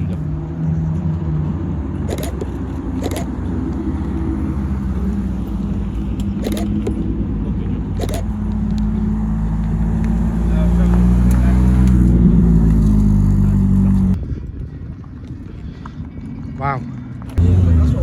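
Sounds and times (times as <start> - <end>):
car engine idling: 1.9 - 14.2
short clicks: 2.1 - 3.8, 6.2 - 7.0, 8.0 - 8.8.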